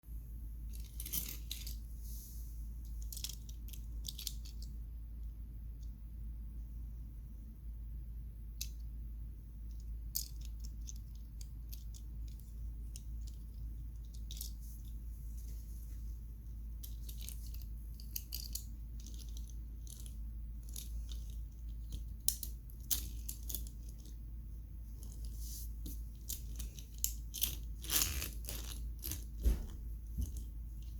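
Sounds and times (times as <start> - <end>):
steady low hum: 0.0 - 30.9
toy cars clicking and tapping: 2.9 - 4.7, 9.7 - 14.6, 16.8 - 24.2, 26.1 - 29.4.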